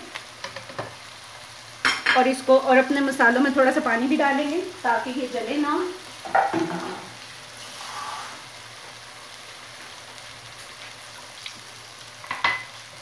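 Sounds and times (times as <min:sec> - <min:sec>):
food sizzling in oil: 0:00.0 - 0:13.0
faint crackles: 0:05.8 - 0:12.2.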